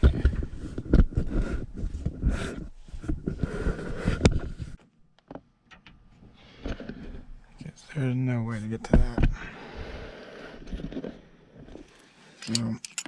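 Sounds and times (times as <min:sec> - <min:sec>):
sharp clicks of tools: 0:12.4 - 0:13.0.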